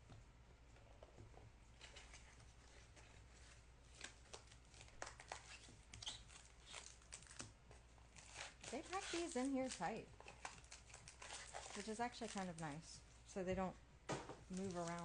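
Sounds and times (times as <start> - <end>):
cardboard rustling: 8.2 - 12.8.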